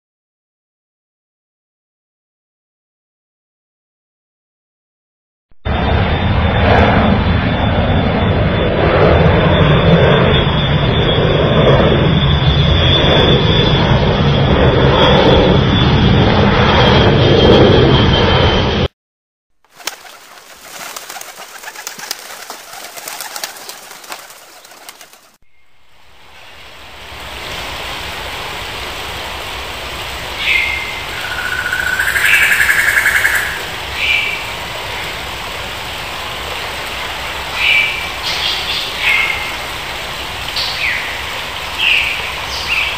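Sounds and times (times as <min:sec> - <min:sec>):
bird wings flapping: 0:19.7 - 0:25.4
steady rushing background: 0:19.7 - 0:36.4
longer bird call: 0:30.4 - 0:34.4.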